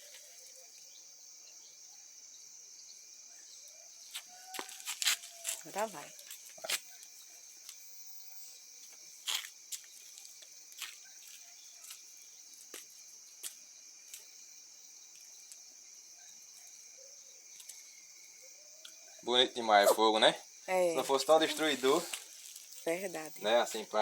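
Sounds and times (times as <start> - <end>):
insects chirring: 0.0 - 24.0
wood bonfire crackling: 20.7 - 24.0.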